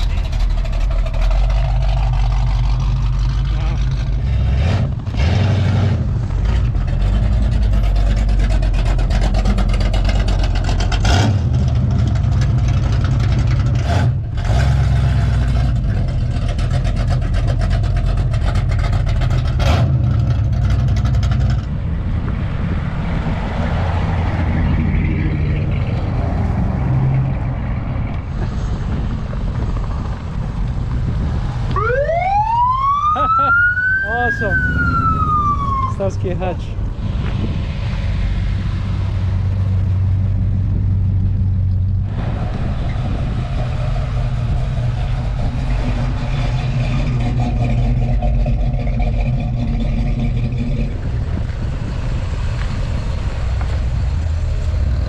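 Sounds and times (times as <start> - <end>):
car engines driving past: 0.0 - 55.0
siren wailing: 31.7 - 36.1.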